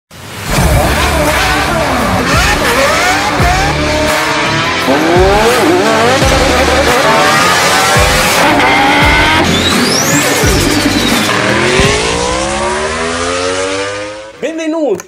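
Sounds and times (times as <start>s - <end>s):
car engines revving: 0.2s - 14.4s
intro music: 0.4s - 14.3s
low thumps: 0.5s - 9.6s, 10.3s - 13.3s
high squeal: 8.4s - 11.6s.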